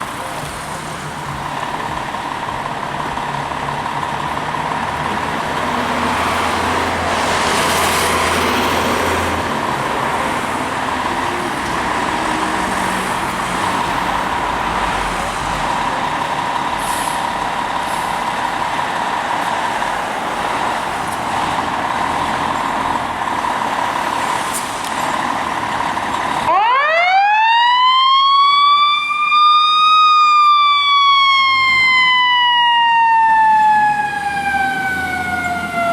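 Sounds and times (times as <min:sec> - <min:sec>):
truck engine and road noise: 0:00.0 - 0:35.9
siren sweeping up in pitch: 0:26.5 - 0:35.9.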